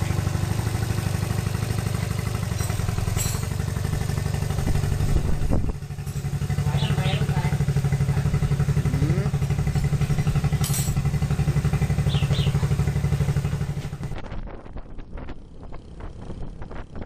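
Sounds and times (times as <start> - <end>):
motorcycle engine running: 0.0 - 17.0
irregular clatter: 1.8 - 6.6, 9.5 - 17.0.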